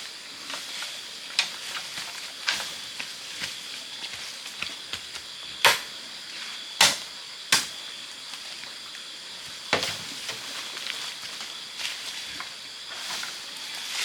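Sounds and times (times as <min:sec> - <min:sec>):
blade chopping bamboo: 0:05.6 - 0:05.9, 0:06.8 - 0:07.8.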